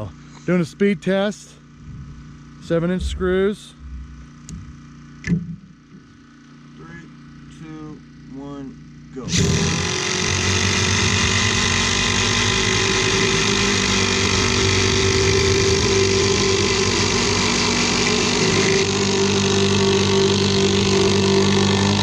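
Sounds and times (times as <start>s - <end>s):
impact drivers hammering buzz: 9.3s - 22.0s.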